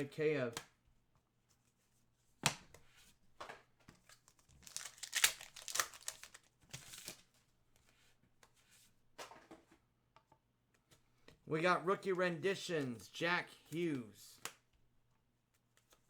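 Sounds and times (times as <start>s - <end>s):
wrapper tearing and crinkling: 4.4s - 7.2s.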